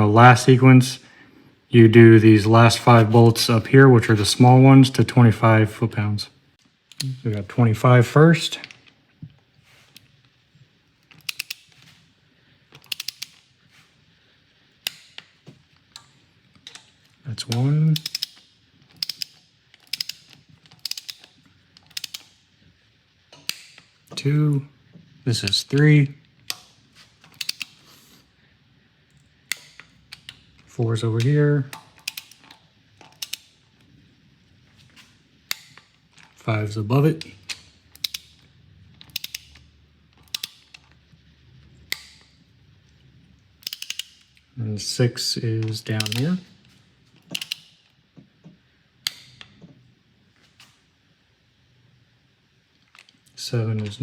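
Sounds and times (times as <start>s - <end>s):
ratchet wrench clicking: 11.0s - 11.8s, 12.8s - 13.5s, 14.8s - 22.4s, 26.4s - 27.8s, 31.2s - 33.6s, 37.2s - 38.4s, 39.0s - 41.0s, 43.6s - 44.4s, 45.6s - 46.4s, 47.2s - 47.9s
torque wrench sharp click: 18.0s - 18.4s, 46.0s - 46.3s, 47.3s - 47.7s.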